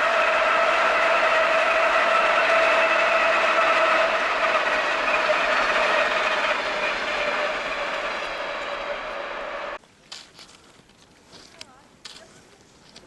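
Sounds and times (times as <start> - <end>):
vehicle passing with whine: 0.0 - 9.8.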